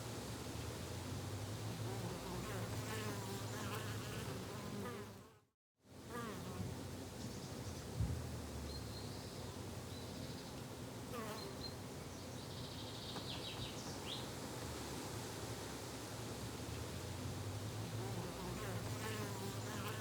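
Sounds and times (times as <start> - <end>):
flying insect buzzing: 2.0 - 5.4, 18.0 - 20.0.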